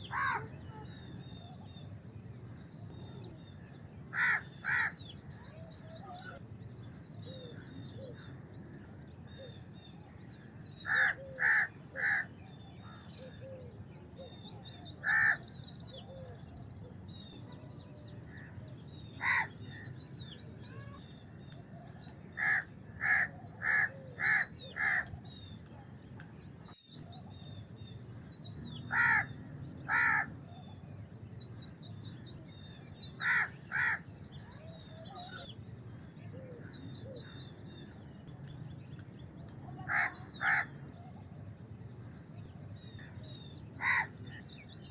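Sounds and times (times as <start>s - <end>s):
small birds chirping: 0.0s - 44.9s
crows cawing: 0.1s - 0.5s, 4.1s - 5.1s, 10.8s - 12.3s, 15.0s - 15.4s, 19.2s - 19.8s, 22.4s - 25.2s, 28.9s - 30.3s, 33.2s - 34.1s, 39.8s - 40.8s, 43.8s - 44.2s.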